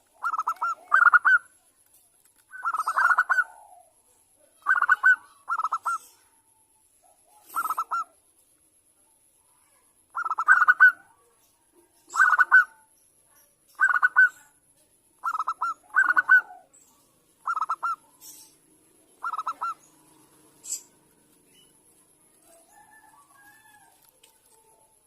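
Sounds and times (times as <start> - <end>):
dove cooing: 0.0 - 1.5, 2.5 - 6.3, 7.3 - 8.2, 10.2 - 11.1, 12.1 - 12.8, 15.2 - 16.8, 17.4 - 21.2.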